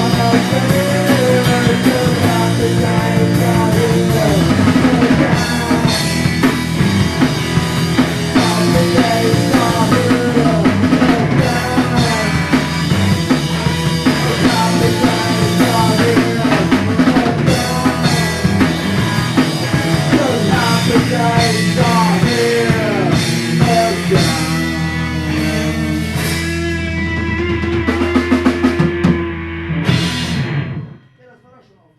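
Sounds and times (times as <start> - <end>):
person singing: 0.0 - 6.6, 8.2 - 26.4
rock band playing: 0.0 - 31.7.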